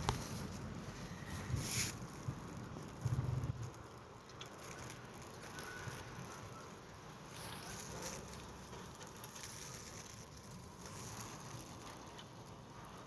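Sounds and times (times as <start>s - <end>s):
wind blowing in gusts: 0.0s - 3.8s.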